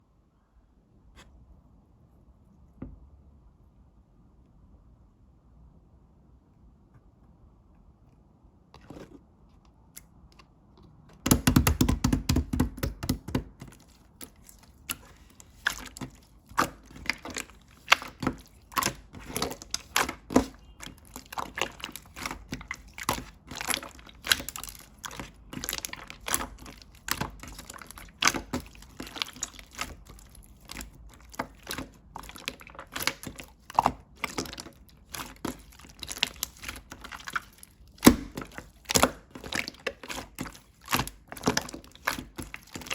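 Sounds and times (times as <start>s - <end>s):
slime squished by hand: 11.2s - 42.9s.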